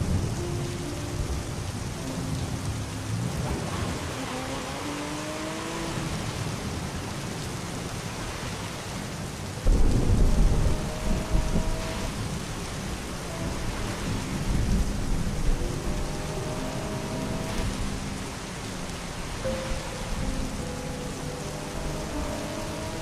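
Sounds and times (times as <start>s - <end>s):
thunder rumbling: 0.0s - 8.3s, 9.1s - 23.0s
steady rain: 0.0s - 23.0s.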